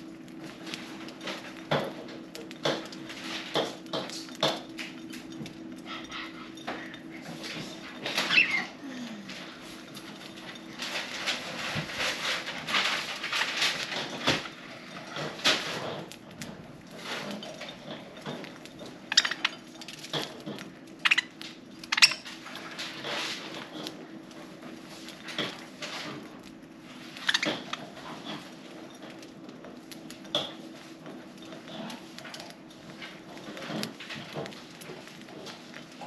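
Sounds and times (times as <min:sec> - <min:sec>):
budgies cracking seeds: 0:08.1 - 0:08.8, 0:18.5 - 0:24.0, 0:25.3 - 0:28.4.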